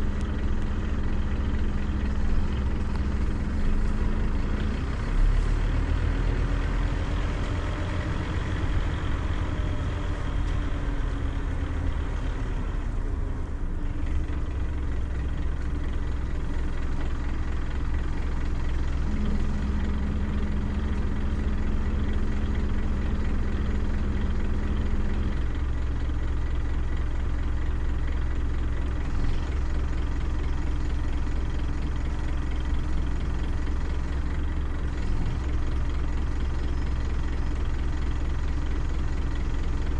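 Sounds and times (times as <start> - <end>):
bus diesel engine idling: 0.0 - 39.9
steady low hum: 18.5 - 26.0.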